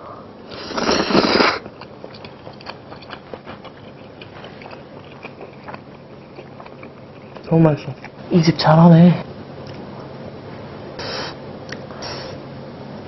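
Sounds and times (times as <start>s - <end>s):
person slurping noodles: 0.5s - 1.7s
wet chewing clicks and smacks: 1.4s - 8.2s.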